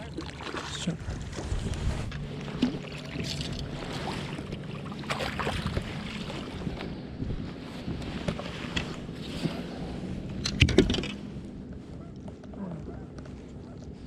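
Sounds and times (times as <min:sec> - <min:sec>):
boat motor humming: 0:00.0 - 0:14.0
knocks and splashes from boat: 0:00.0 - 0:14.0
wind noise: 0:01.0 - 0:03.9, 0:05.6 - 0:11.4.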